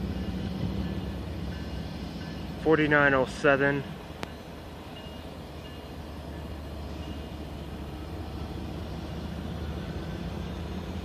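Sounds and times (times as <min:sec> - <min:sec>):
diesel locomotive low rumble: 0:00.0 - 0:11.0.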